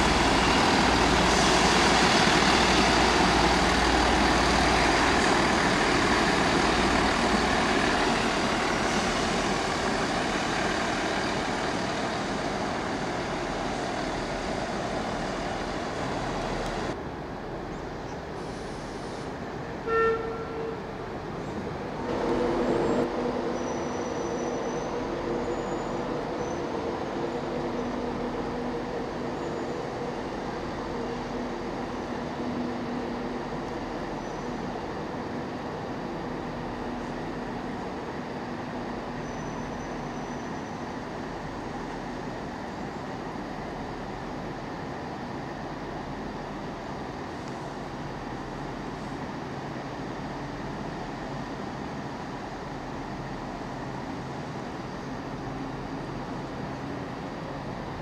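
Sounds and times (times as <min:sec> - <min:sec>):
train engine droning: 0:00.0 - 0:58.0
train horn toot: 0:19.8 - 0:20.9.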